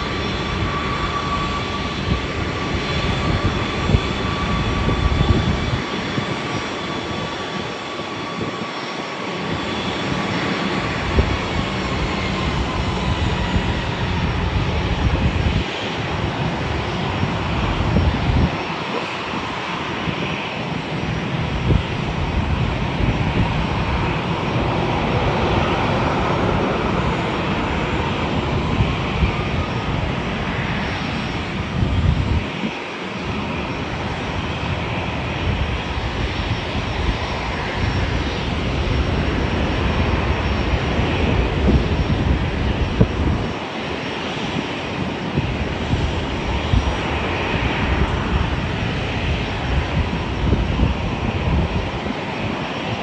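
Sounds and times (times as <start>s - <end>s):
airliner engines rumbling: 0.0s - 53.0s.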